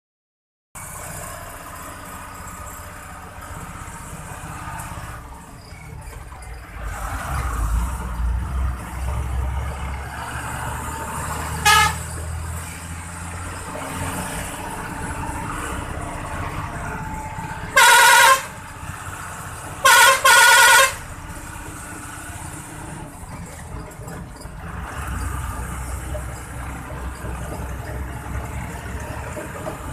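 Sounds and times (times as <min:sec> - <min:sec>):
truck diesel engine running: 0:00.8 - 0:29.9
truck horn blasts: 0:11.4 - 0:12.3, 0:17.6 - 0:18.7, 0:19.8 - 0:21.2.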